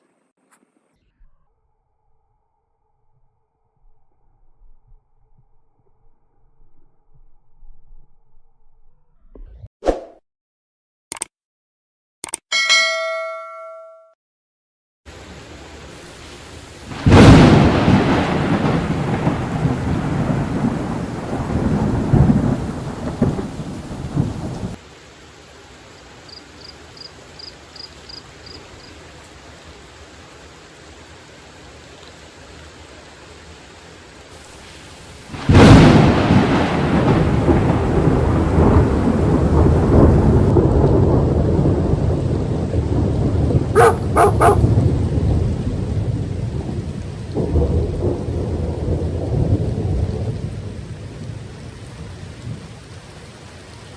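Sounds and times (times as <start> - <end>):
steady rain hissing: 15.1 - 53.9
thunderclaps with rolling rumble: 16.9 - 24.8, 35.3 - 53.1.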